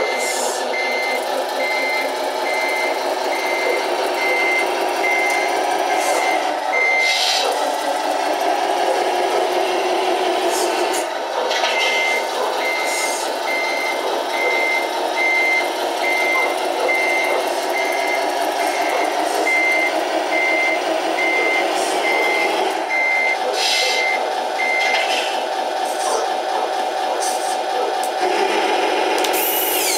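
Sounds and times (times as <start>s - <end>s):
reversing beeper: 0.0s - 7.6s, 11.6s - 25.1s
diesel engine running: 0.0s - 29.9s.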